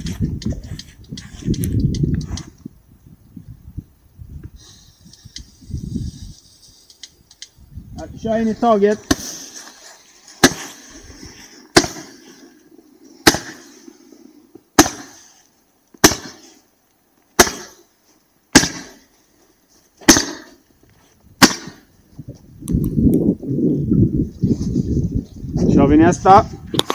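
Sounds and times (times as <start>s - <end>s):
hiss of burning composition: 3.9s - 22.5s.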